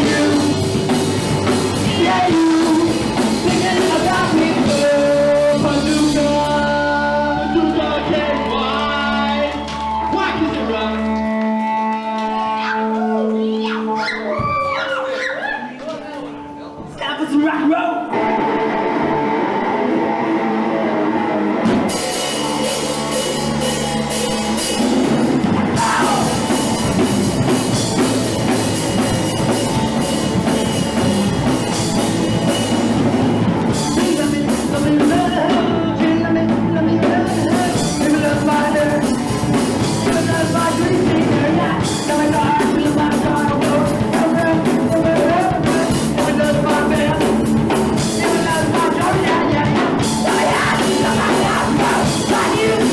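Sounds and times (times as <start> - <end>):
drum kit: 0.0 - 11.4, 21.5 - 52.9
electric guitar: 0.0 - 14.5, 18.1 - 52.9
bass guitar: 0.0 - 14.9, 18.1 - 52.9
person singing: 0.0 - 16.9, 25.5 - 27.1, 33.6 - 52.9.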